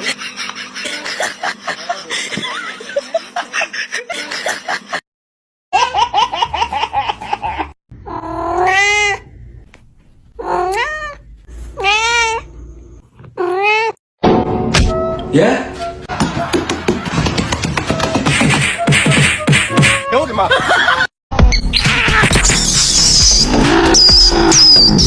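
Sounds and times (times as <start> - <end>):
drawn-out meows: 11.8 - 12.4.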